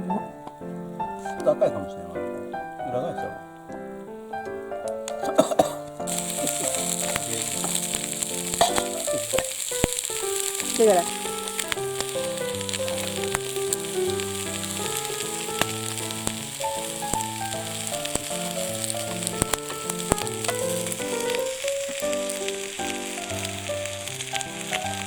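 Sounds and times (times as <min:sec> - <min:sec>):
background music: 0:00.0 - 0:25.0
food frying with sizzle: 0:06.0 - 0:25.0.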